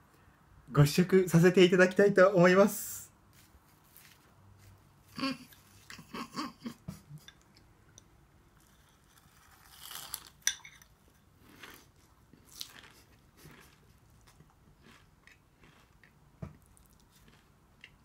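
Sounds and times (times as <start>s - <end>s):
person chewing crunchy food: 8.6s - 18.0s.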